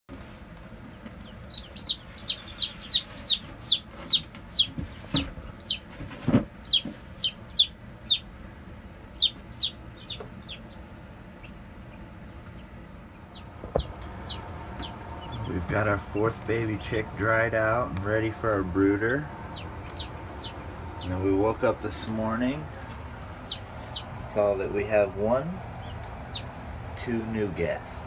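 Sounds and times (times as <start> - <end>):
baby chicks peeping: 0.6 - 28.0
soft knocks: 13.4 - 14.2.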